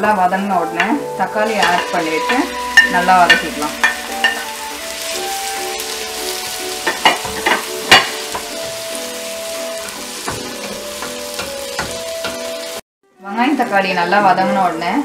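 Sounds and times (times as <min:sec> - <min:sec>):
vegetables sizzling in oil: 0:00.0 - 0:12.8
spatula knocking on pot: 0:06.8 - 0:08.8, 0:10.2 - 0:12.5.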